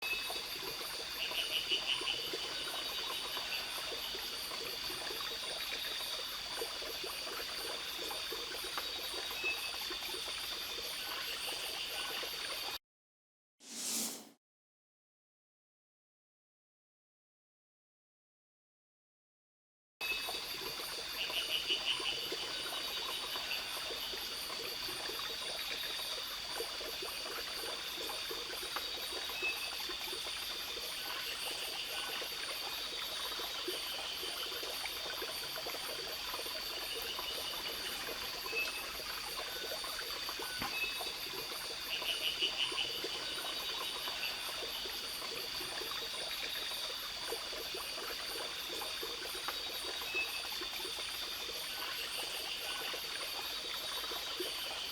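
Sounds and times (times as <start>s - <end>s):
insects chorus: 20.0s - 54.9s
water trickling: 20.3s - 54.8s.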